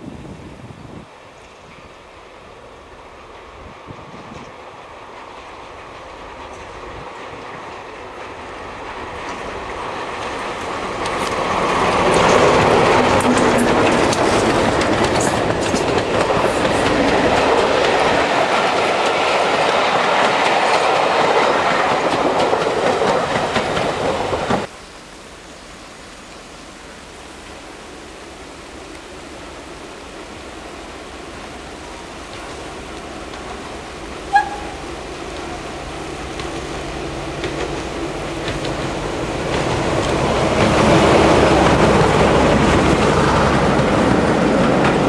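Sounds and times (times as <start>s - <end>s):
diesel train passing: 0.0s - 25.8s, 26.6s - 45.0s
steady rushing noise: 2.1s - 45.0s
wheels clattering over rail joints: 6.4s - 24.7s.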